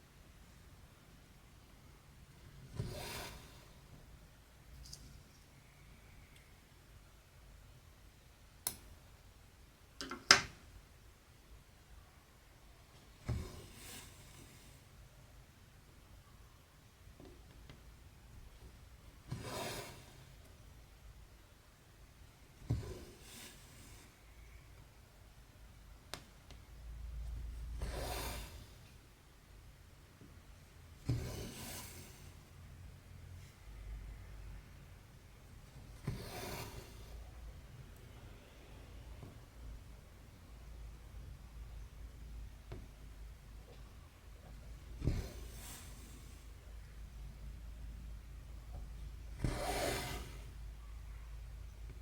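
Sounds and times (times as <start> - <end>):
thread pulling through fabric: 19.3 - 20.5, 31.0 - 32.3, 35.7 - 37.2, 44.9 - 46.4, 48.7 - 50.6.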